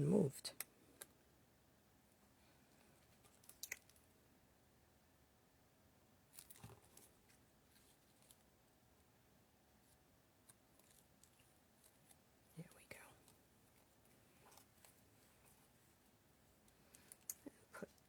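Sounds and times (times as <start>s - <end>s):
soft rustle of cardstock: 6.3s - 9.1s, 9.7s - 17.3s.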